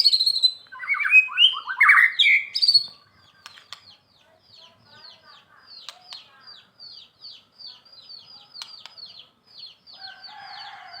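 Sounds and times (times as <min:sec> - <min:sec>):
bird chirping fast: 0:00.0 - 0:10.4
sharp clicks: 0:03.4 - 0:04.0, 0:05.8 - 0:06.3
rooster crowing: 0:10.0 - 0:11.0.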